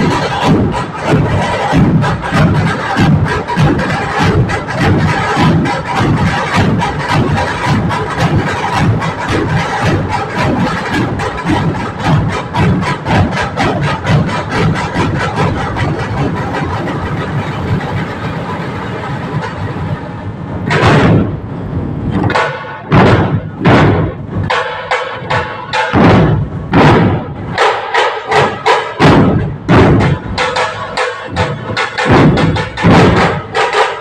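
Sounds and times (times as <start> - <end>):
dhol drum strokes: 0.0 - 34.0
steady rough noise: 0.0 - 34.0.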